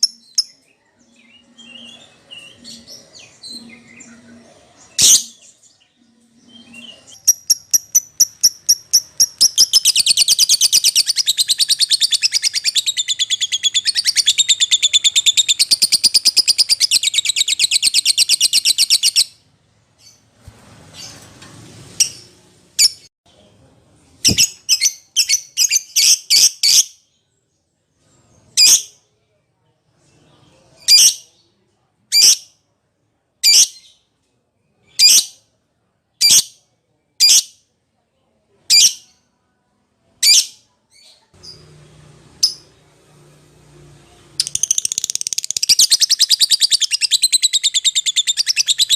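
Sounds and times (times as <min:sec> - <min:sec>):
shrill bird chirps: 0:06.4 - 0:19.4, 0:44.4 - 0:48.9
lovebird chattering trill: 0:07.2 - 0:19.2.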